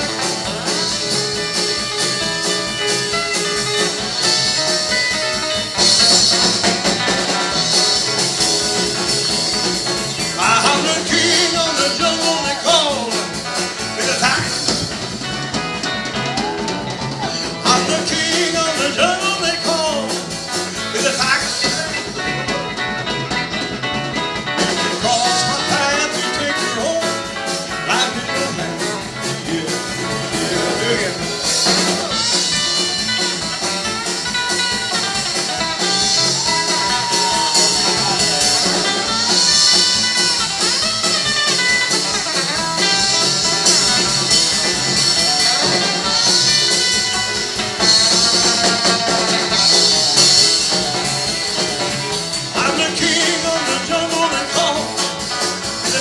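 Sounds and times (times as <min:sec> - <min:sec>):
electric guitar: 0:00.0 - 0:56.0
rock and roll band playing: 0:00.0 - 0:56.0
person singing: 0:10.3 - 0:14.8, 0:16.2 - 0:22.8, 0:24.7 - 0:33.0, 0:47.8 - 0:56.0.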